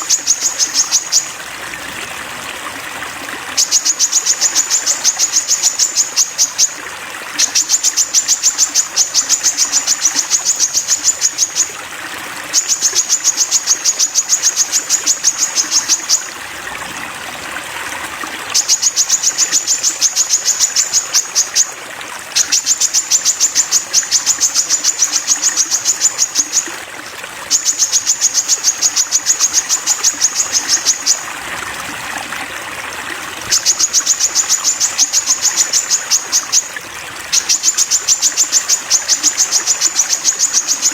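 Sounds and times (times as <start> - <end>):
faint trickling water: 0.0 - 40.9
bird song rapid high notes: 18.6 - 21.7, 22.4 - 26.7, 27.5 - 31.2, 33.5 - 36.7, 37.3 - 40.9.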